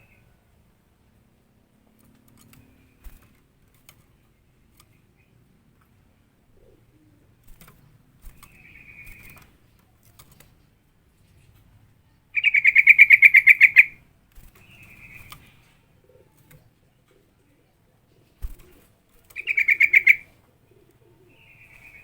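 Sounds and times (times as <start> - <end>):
bird chattering and trilling: 12.4 - 14.0, 19.3 - 20.3.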